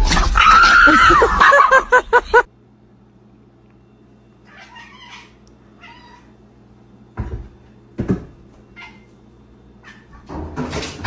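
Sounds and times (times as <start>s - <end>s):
cat meowing: 4.5s - 6.3s.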